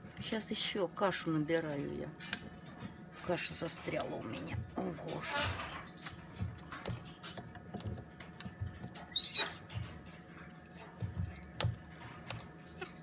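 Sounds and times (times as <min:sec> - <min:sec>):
wavering squeak: 0:09.1 - 0:09.6.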